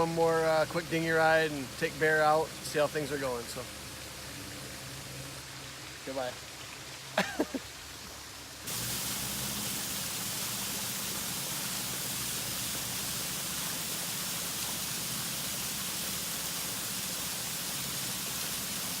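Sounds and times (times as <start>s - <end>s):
waterfall rushing: 8.7s - 19.0s.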